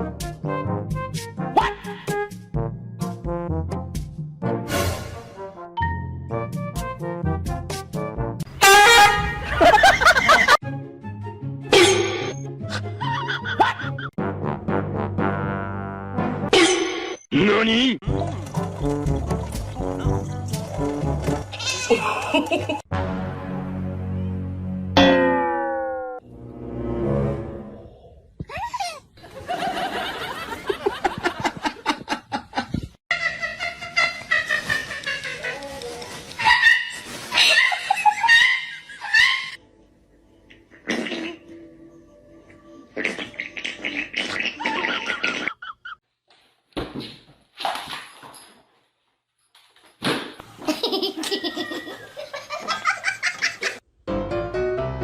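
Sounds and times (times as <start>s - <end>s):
people laughing: 9.4s - 10.6s, 12.7s - 14.2s, 21.9s - 22.8s, 29.2s - 35.8s, 50.7s - 53.8s
person laughing: 21.9s - 22.8s, 50.6s - 53.8s.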